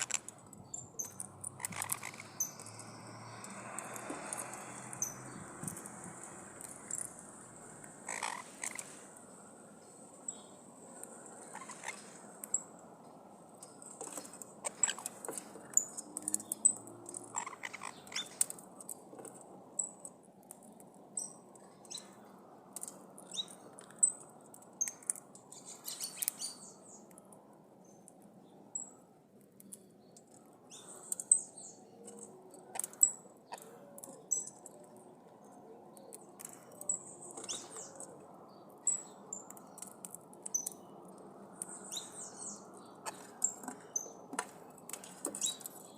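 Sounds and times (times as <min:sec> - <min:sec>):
harsh bird calls: 0:00.0 - 0:09.1, 0:10.4 - 0:12.3, 0:14.2 - 0:18.5
birds chirping: 0:00.0 - 0:18.9, 0:20.6 - 0:27.1, 0:27.8 - 0:45.9
low background noise: 0:00.0 - 0:45.9.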